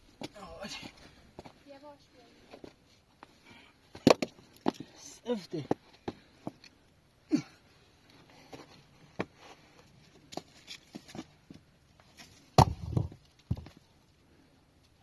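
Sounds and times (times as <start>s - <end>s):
heavier thuds: 12.6s - 13.7s.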